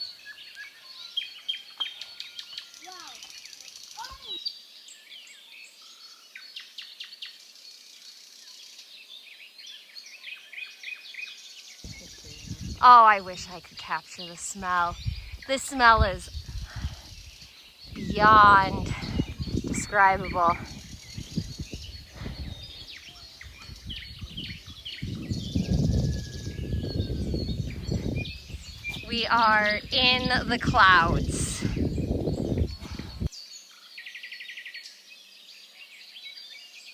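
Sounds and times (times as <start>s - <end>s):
birds chirping: 11.4s - 34.0s
wind rumble on microphone: 11.8s - 14.0s, 14.6s - 33.3s.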